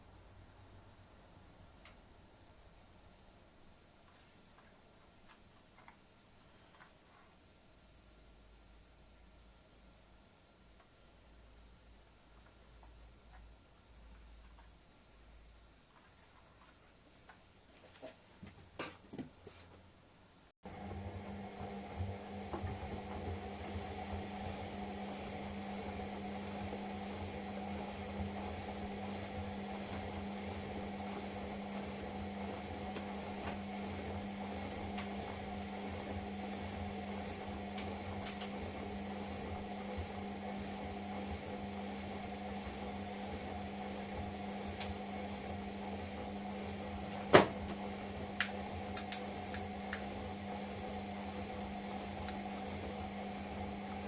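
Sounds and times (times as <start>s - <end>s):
washing machine humming: 20.6s - 54.0s.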